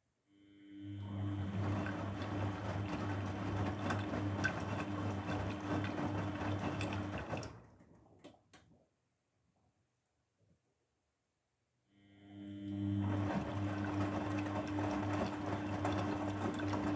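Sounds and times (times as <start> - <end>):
washing machine running: 0.8 - 8.2, 12.5 - 16.9.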